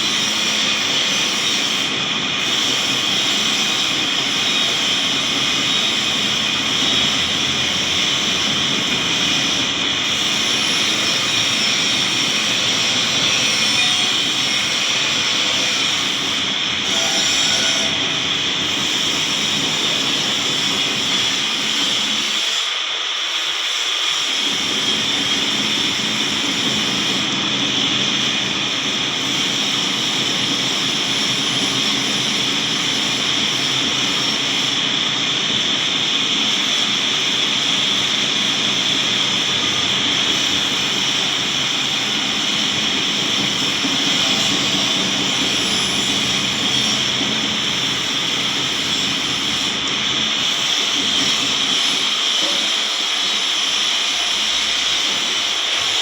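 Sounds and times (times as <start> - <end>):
loud steady hiss: 0.0 - 56.0.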